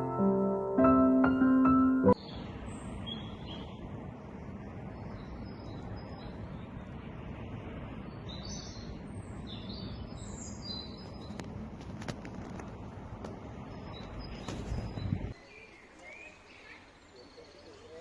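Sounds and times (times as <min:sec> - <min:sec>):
low outdoor background noise: 0:00.0 - 0:18.0
small birds chirping: 0:02.1 - 0:03.9, 0:04.8 - 0:07.0, 0:07.9 - 0:12.7, 0:13.5 - 0:18.0.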